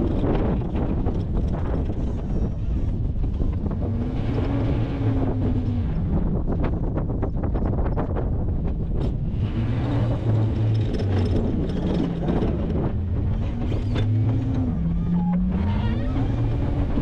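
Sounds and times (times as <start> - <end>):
truck engine revving: 3.6 - 6.4, 9.0 - 17.0.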